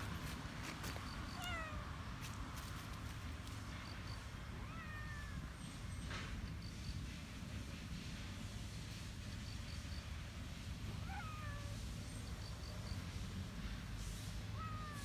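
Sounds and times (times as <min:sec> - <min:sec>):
cat meowing: 0:01.3 - 0:01.9, 0:04.6 - 0:05.4, 0:11.0 - 0:11.8, 0:14.6 - 0:15.0.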